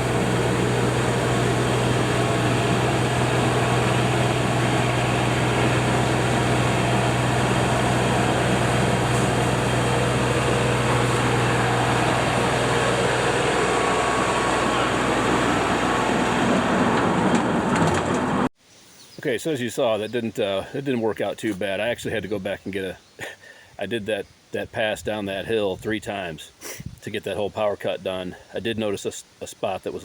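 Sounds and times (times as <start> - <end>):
tractor diesel engine running: 0.0 - 18.5.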